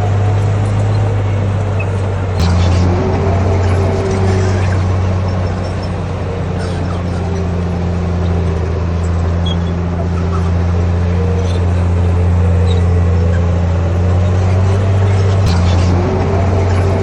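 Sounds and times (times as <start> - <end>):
bulldozer diesel engine drone: 0.0 - 17.0.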